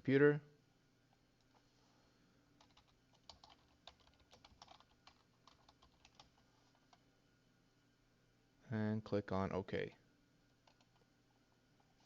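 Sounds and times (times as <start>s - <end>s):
typing on computer keyboard: 2.6s - 6.4s, 10.6s - 11.0s.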